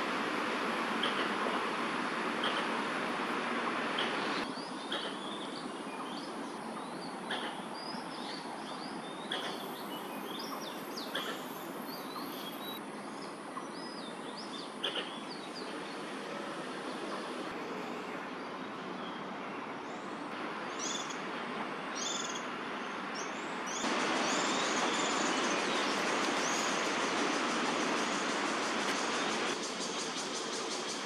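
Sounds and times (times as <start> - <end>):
distant city traffic hiss: 0.0 - 31.0
small birds chirping: 23.2 - 31.0.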